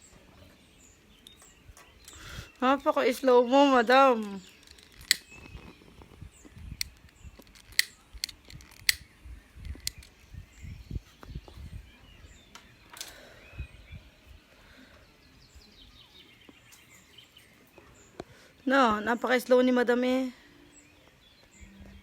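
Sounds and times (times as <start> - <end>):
faint bird chirps: 0.0 - 8.1, 9.0 - 22.0
sharp clicks: 4.2 - 10.1.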